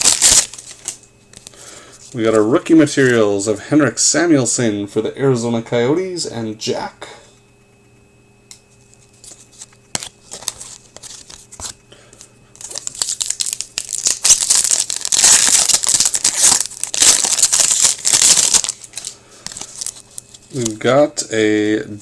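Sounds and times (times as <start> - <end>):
wrapper tearing and crinkling: 0.0 - 1.0, 12.6 - 20.8.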